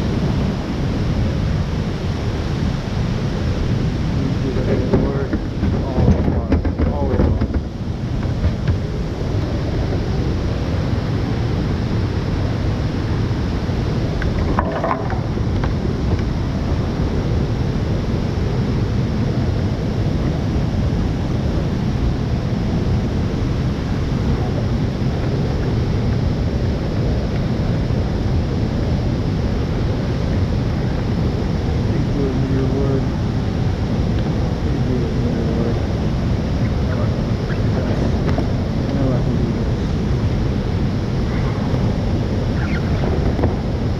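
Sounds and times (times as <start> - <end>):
rushing whitewater: 0.0 - 43.9.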